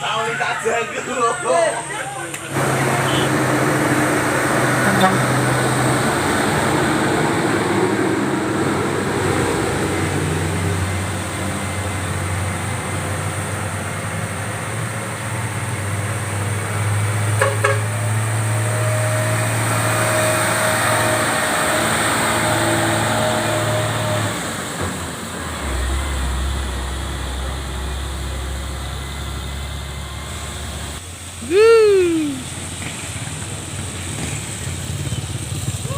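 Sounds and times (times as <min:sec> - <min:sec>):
truck engines humming: 0:00.0 - 0:35.9.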